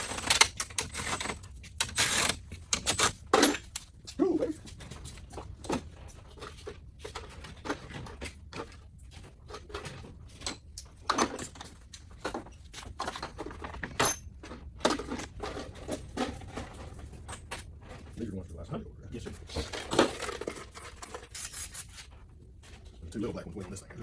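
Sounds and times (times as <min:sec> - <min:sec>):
metal tools and fasteners clinking: 0:00.0 - 0:03.9, 0:13.1 - 0:18.1.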